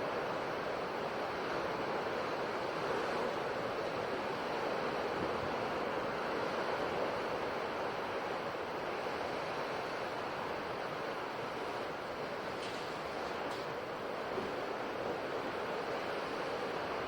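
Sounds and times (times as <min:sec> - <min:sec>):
ocean surf washing on shore: 0:00.0 - 0:17.0.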